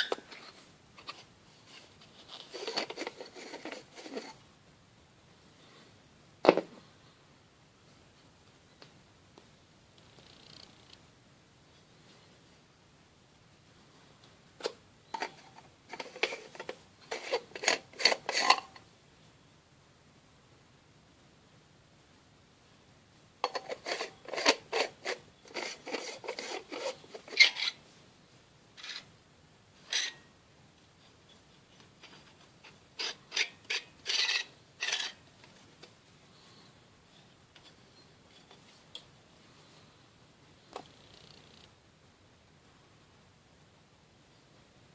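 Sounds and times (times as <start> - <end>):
metal pepper mill clinks and scrapes: 15.2 - 18.8, 29.9 - 30.2, 33.0 - 35.2.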